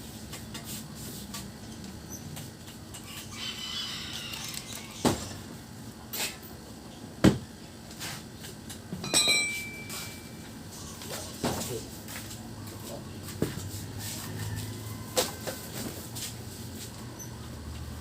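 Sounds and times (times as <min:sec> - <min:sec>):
metal clink ringing: 0:09.0 - 0:10.3.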